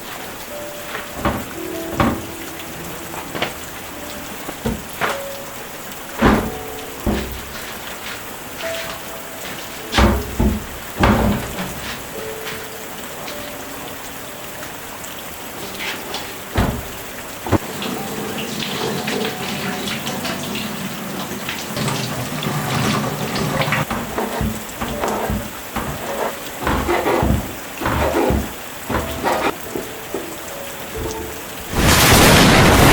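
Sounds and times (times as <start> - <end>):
steady rain falling: 0.0 - 32.9
sharp knocks: 1.1 - 2.5, 4.5 - 5.3, 6.2 - 7.7, 9.9 - 12.2, 16.6 - 17.6, 23.8 - 30.3.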